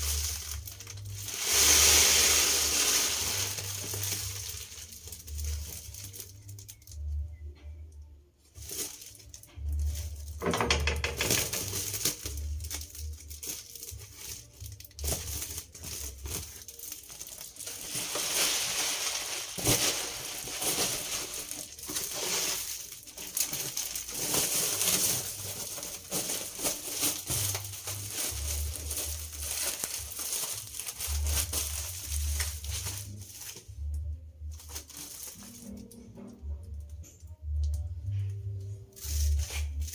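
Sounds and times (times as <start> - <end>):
rustling and crinkling: 0.0 - 7.8, 8.4 - 39.9
clicks and knocks: 10.4 - 11.8
background music with bass: 25.2 - 39.9.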